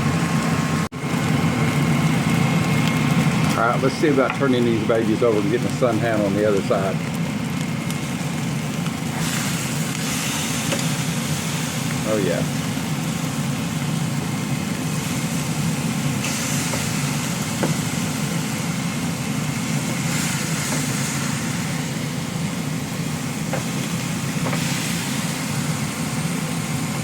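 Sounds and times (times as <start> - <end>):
low mechanical hum: 0.0 - 27.0
hiss: 9.1 - 12.7, 14.9 - 27.0.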